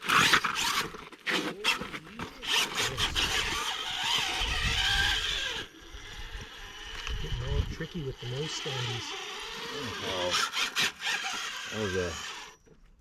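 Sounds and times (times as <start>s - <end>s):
toy car scraping on rock: 0.0s - 12.6s
small electric motor whining: 0.0s - 13.0s
wind rumbling on microphone: 2.8s - 8.1s.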